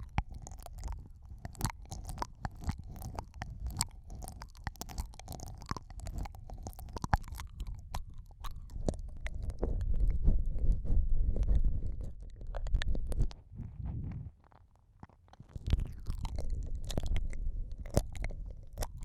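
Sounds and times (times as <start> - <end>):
wet mouth sounds at microphone: 0.0 - 19.0
low rumble: 8.8 - 14.4.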